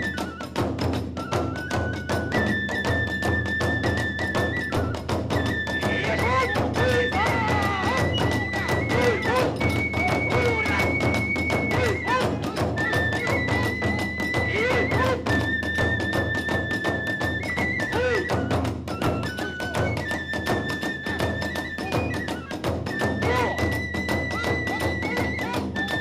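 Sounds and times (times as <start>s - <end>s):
bamboo flute long high notes: 0.0s - 26.0s
fast driving drumming: 5.3s - 15.6s.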